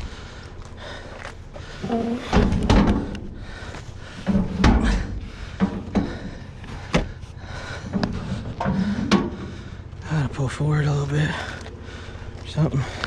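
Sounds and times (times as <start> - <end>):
heavy thumps and bangs: 1.8 - 7.2.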